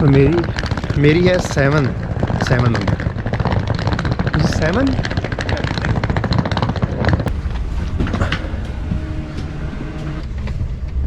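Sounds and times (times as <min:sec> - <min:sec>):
rapid train clatter: 0:00.0 - 0:11.0
train rumbling: 0:00.0 - 0:11.0.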